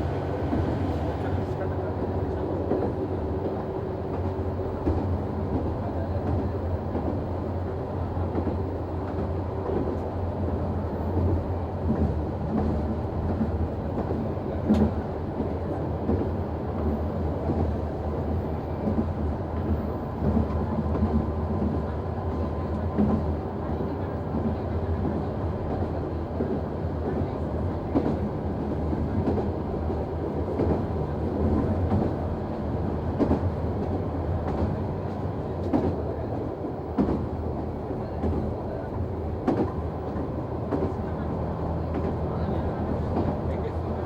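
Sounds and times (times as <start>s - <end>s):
diesel engine drone: 0.0s - 1.8s
wheels rumbling and knocking on rail: 0.0s - 44.0s.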